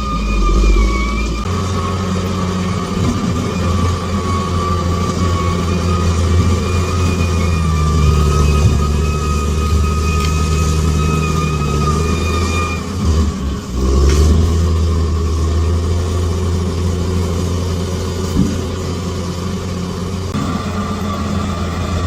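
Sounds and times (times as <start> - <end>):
high steady whine: 0.0 - 2.4
bulldozer diesel engine running: 0.0 - 22.0.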